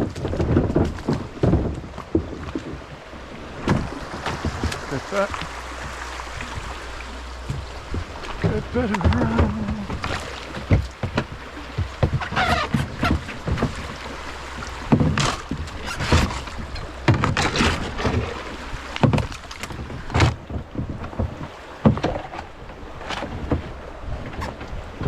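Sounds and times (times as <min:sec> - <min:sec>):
paddle splashes and knocks: 0:00.0 - 0:25.0
running water: 0:00.0 - 0:25.0.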